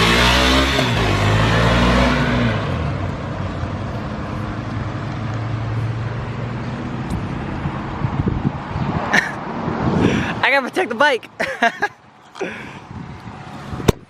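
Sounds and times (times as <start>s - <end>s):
car engine pulling away: 0.0s - 8.3s.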